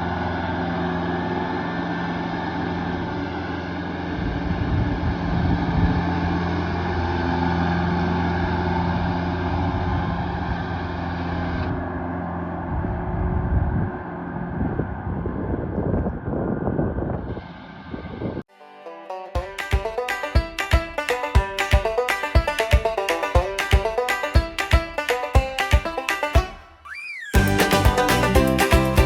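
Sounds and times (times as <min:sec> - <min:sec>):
tractor engine running: 0:27.4 - 0:29.0.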